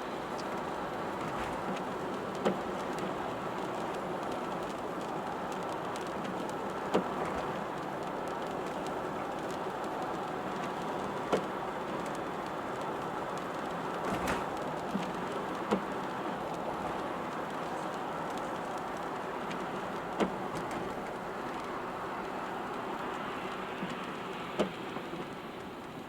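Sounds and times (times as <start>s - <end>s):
rain on a car: 0.0s - 26.0s.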